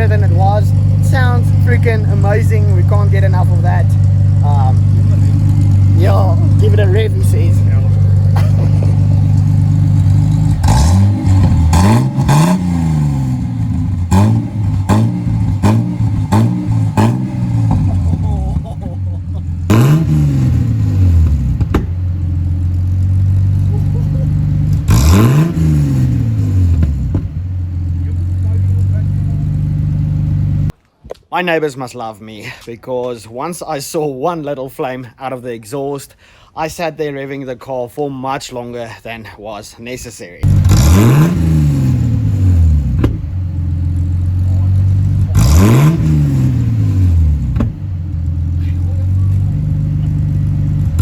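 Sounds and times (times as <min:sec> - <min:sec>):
car engine idling and revving: 0:00.0 - 0:30.8, 0:40.4 - 0:51.0
exhaust pop: 0:00.0 - 0:30.8, 0:40.4 - 0:51.0
sharp crack: 0:01.6 - 0:19.0.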